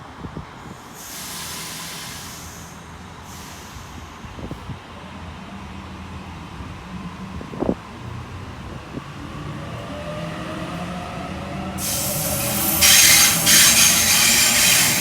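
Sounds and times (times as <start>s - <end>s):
electric train humming: 8.9s - 15.0s
air hissing: 11.8s - 15.0s.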